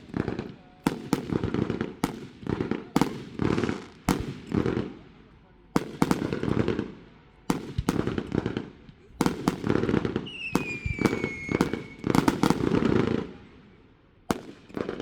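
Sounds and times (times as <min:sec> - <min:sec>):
fireworks banging and crackling: 0:00.0 - 0:15.0
whistling firework: 0:09.2 - 0:12.9.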